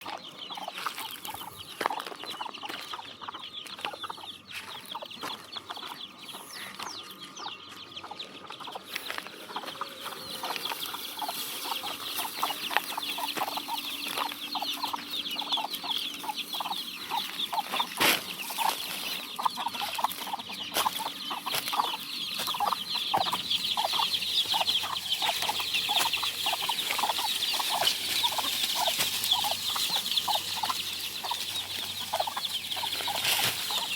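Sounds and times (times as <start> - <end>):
chickens clucking: 0.0 - 33.9
high chick peeps: 0.0 - 33.9.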